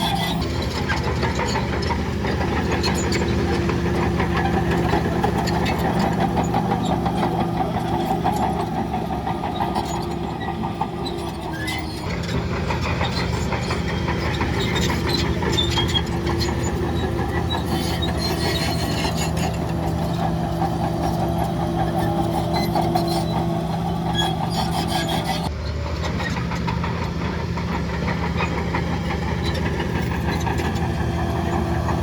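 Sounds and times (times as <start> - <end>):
heavy diesel machinery running: 0.0 - 32.0
metallic clinks and squeaks: 12.9 - 25.5.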